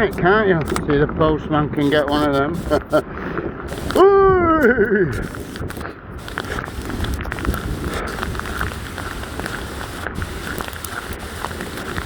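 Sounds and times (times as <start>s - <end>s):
hail and rain hissing: 4.7s - 12.0s.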